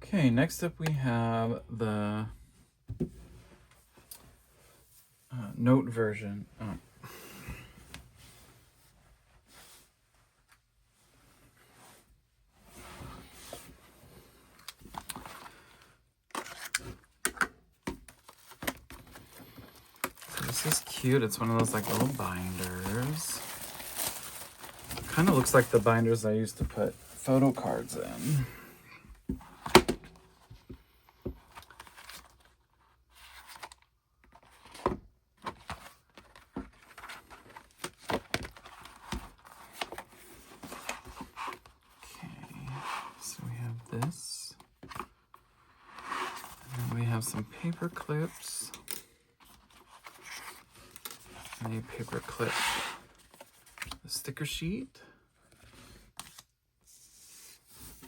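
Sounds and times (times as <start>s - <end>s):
paper and plastic rustling: 17.9s - 28.5s, 31.4s - 54.1s
packaging sliding and rustling: 18.2s - 28.4s.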